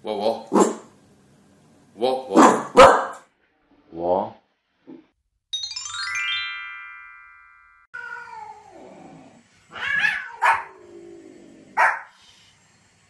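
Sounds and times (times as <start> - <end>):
small dog yapping barks: 2.4 - 3.2, 9.8 - 10.7, 11.8 - 12.1
chiming jingle: 5.5 - 7.9.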